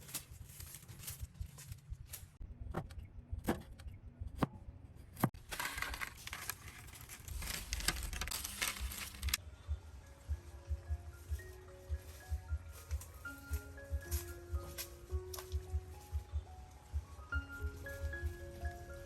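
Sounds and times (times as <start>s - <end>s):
handling rustling: 0.0s - 2.4s, 5.4s - 9.4s.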